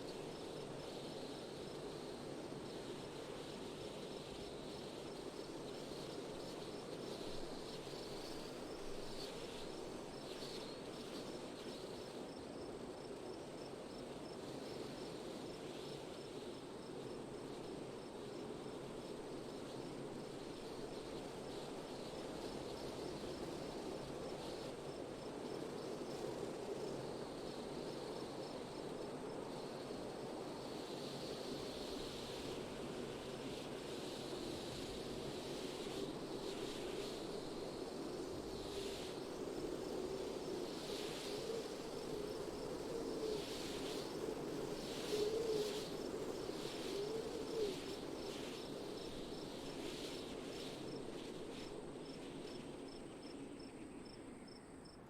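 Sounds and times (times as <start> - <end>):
insect chirping: 51.6 - 55.0.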